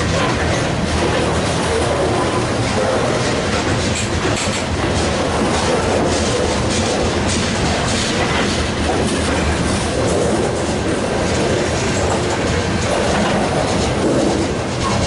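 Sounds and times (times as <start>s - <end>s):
freight train wheels on rails: 0.0s - 15.0s.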